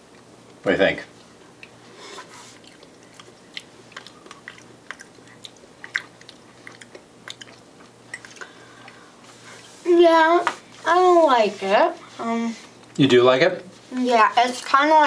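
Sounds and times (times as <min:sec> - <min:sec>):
crisp pastry chewing clicks: 0:02.6 - 0:09.0.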